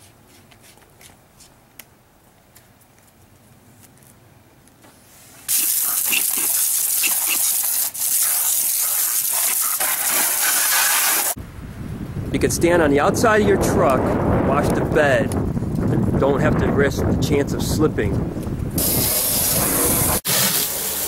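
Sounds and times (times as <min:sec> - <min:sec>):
water spraying from wand: 0:05.5 - 0:11.4, 0:18.8 - 0:21.0.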